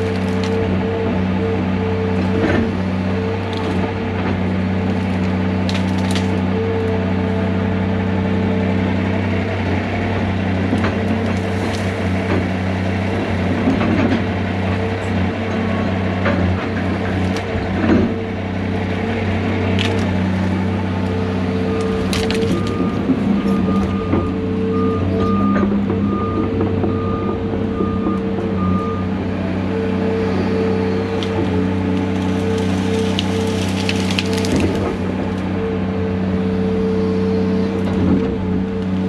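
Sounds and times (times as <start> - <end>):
wood cracking and snapping: 0.0 - 7.1, 10.4 - 14.8, 16.2 - 24.5, 31.0 - 35.6
heavy diesel machinery running: 0.0 - 39.0.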